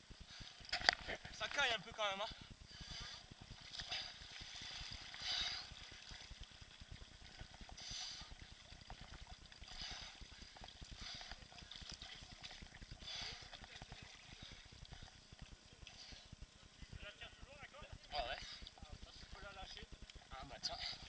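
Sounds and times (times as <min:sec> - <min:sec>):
water splashing and sloshing: 0:00.2 - 0:01.8, 0:02.8 - 0:16.0.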